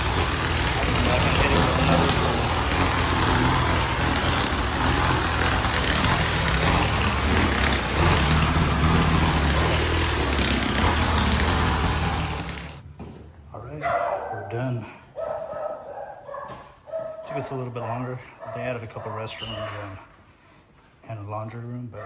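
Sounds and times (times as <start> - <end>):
low machine hum: 0.0 - 12.8
tile spinner spraying and vacuuming: 0.0 - 12.8.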